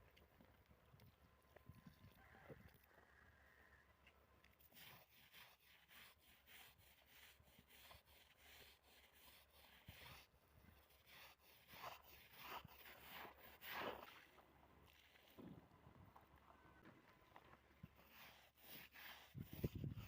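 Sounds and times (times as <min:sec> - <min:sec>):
faint wiping strokes on surface: 0:04.6 - 0:15.4, 0:17.9 - 0:20.0.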